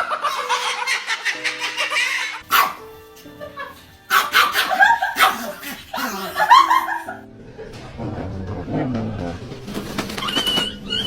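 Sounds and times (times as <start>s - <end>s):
dog barking rapidly: 0.0s - 2.9s, 4.1s - 7.2s
background music: 0.0s - 11.0s.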